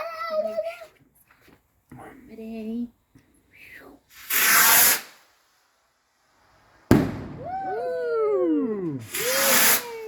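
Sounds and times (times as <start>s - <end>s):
firework rocket whoosh: 4.1s - 5.7s, 9.0s - 10.0s
firework bang: 6.9s - 7.8s.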